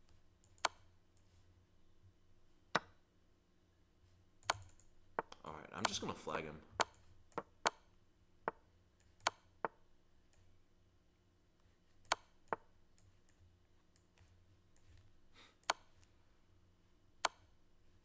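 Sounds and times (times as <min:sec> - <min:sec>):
chess move clicks: 0:04.4 - 0:07.8.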